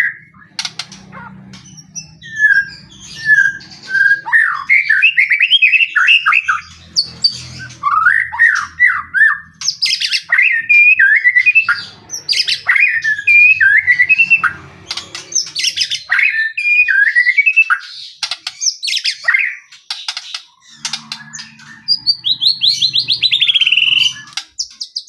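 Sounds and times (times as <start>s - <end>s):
bird singing whistled phrases: 2.0s - 6.7s, 7.6s - 14.5s, 15.5s - 17.9s, 20.6s - 25.0s.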